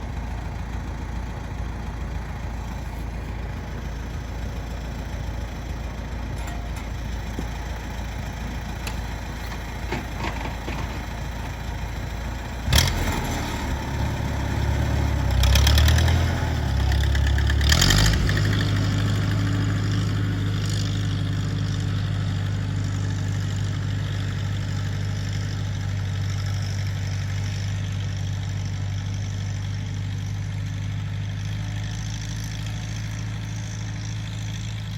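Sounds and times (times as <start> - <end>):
low steady rumble: 0.0 - 12.7
tractor engine starting and idling: 0.0 - 34.9.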